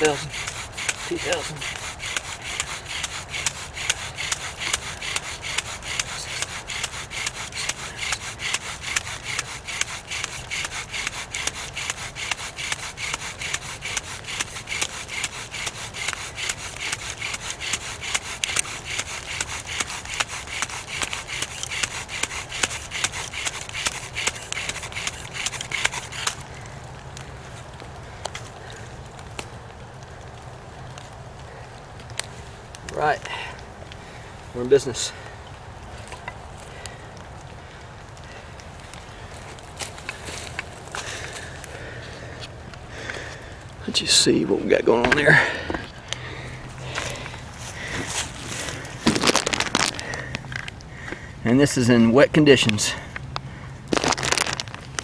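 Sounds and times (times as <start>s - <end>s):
bow drill spindle grinding: 0.0s - 26.5s, 46.6s - 50.8s, 53.9s - 55.0s.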